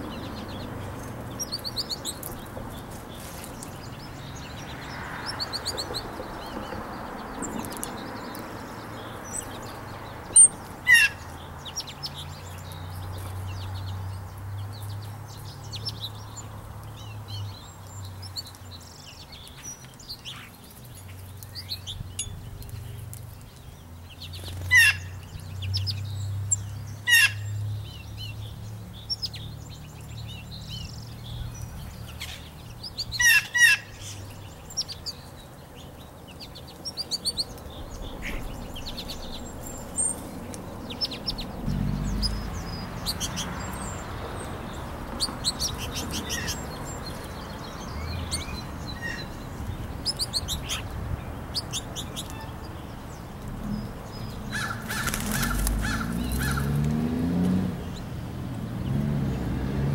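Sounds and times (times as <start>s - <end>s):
harsh bird calls: 0.0s - 16.5s, 23.8s - 58.1s
low rumble: 41.3s - 43.1s.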